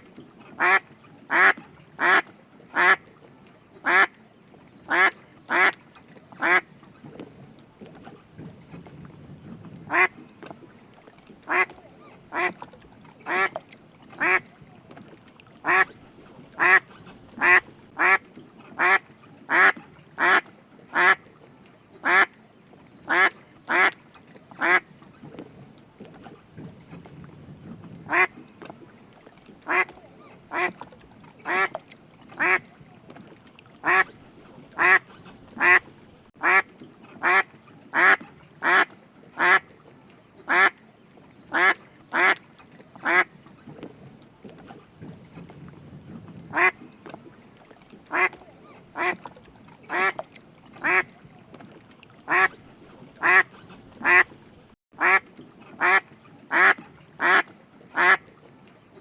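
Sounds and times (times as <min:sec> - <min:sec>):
duck quacking: 0:00.6 - 0:03.0, 0:03.8 - 0:04.1, 0:04.9 - 0:05.8, 0:06.4 - 0:06.6, 0:09.9 - 0:10.1, 0:11.5 - 0:11.7, 0:12.3 - 0:12.6, 0:14.2 - 0:14.4, 0:15.6 - 0:15.9, 0:16.6 - 0:18.2, 0:18.8 - 0:21.2, 0:22.0 - 0:22.3, 0:23.1 - 0:24.0, 0:24.6 - 0:24.8, 0:28.1 - 0:28.3, 0:29.7 - 0:29.9, 0:30.5 - 0:30.7, 0:32.4 - 0:32.6, 0:33.8 - 0:34.1, 0:34.8 - 0:35.8, 0:36.4 - 0:36.6, 0:37.2 - 0:39.6, 0:41.5 - 0:42.4, 0:43.0 - 0:43.3, 0:46.5 - 0:46.8, 0:48.1 - 0:48.4, 0:49.0 - 0:49.2, 0:50.8 - 0:51.1, 0:52.3 - 0:52.5, 0:53.2 - 0:54.3, 0:55.0 - 0:55.2, 0:55.8 - 0:58.2.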